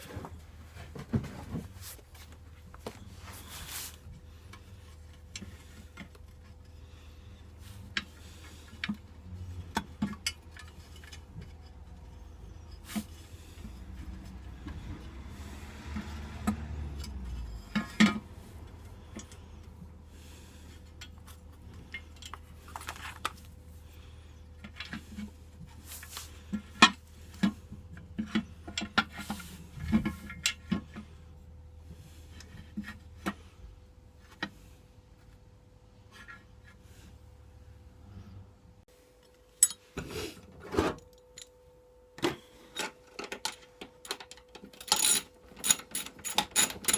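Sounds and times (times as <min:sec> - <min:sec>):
low steady hum: 0:00.0 - 0:46.9
metal tools clinking: 0:42.7 - 0:46.9.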